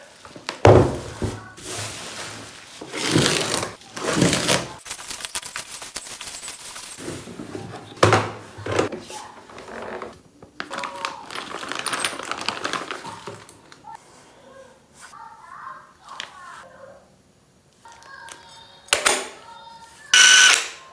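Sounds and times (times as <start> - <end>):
metal tools clattering: 4.1 - 7.9, 11.3 - 13.0.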